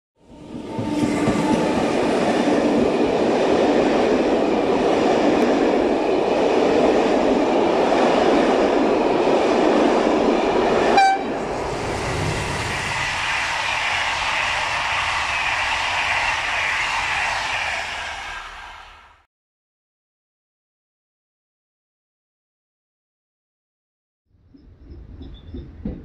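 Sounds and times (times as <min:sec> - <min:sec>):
train wheels rumbling on rail: 0:00.2 - 0:19.2, 0:24.9 - 0:26.0
short train horn toot: 0:11.0 - 0:11.4.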